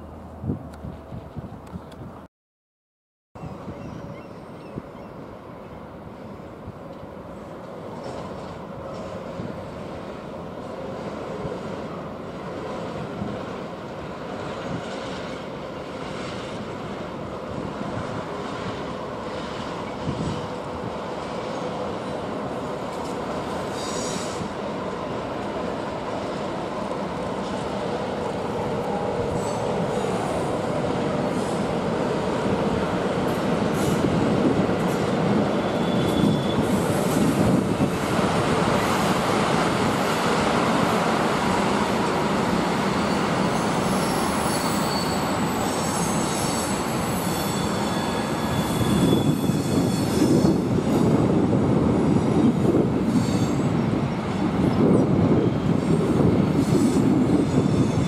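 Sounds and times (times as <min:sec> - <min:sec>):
high wheel squeal: 0:23.7 - 0:24.5, 0:29.2 - 0:30.5, 0:35.5 - 0:37.3, 0:42.9 - 0:50.7, 0:53.1 - 0:53.7.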